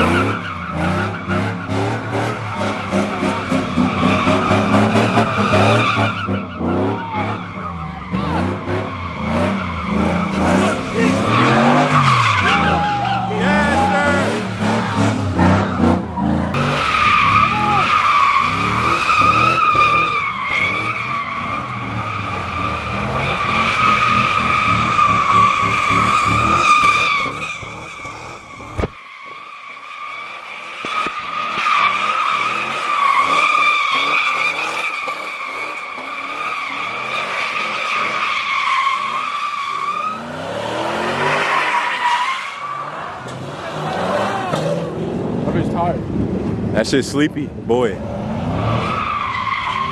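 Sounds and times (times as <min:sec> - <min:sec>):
engine revving hard: 0:00.0 - 0:28.8, 0:39.8 - 0:41.9
car tyres screeching: 0:00.0 - 0:49.9.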